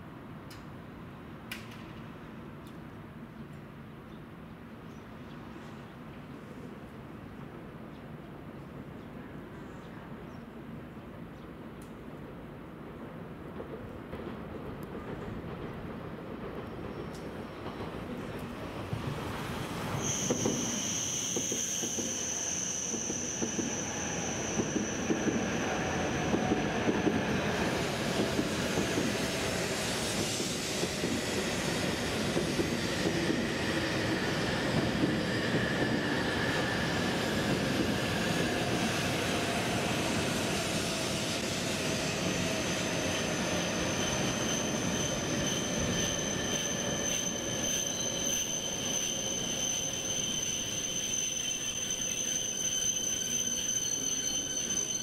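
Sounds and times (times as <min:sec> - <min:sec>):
train wheels rumbling on rail: 0:12.0 - 0:55.0
high thin wheel squeal: 0:20.0 - 0:26.8, 0:39.9 - 0:55.0.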